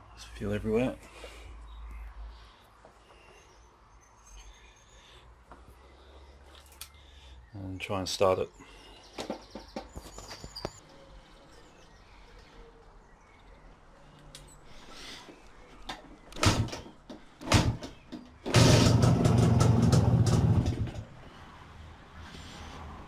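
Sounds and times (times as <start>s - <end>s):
motorcycle kickstarter kicks: 15.9s - 21.1s
two-stroke engine running: 18.4s - 21.1s.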